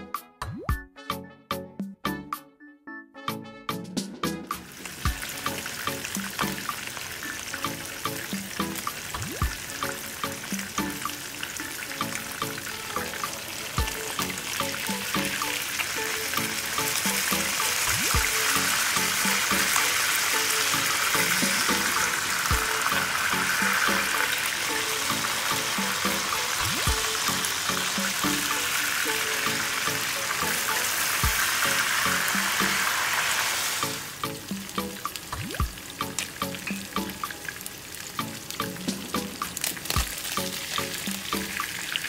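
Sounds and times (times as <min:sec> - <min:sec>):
background music with bass beat: 0:00.0 - 0:02.5, 0:03.2 - 0:06.8, 0:11.9 - 0:15.5, 0:16.2 - 0:19.8, 0:20.4 - 0:24.2, 0:24.8 - 0:28.6, 0:29.4 - 0:32.9, 0:33.8 - 0:37.3
fish sizzling in hot oil: 0:04.5 - 0:42.0.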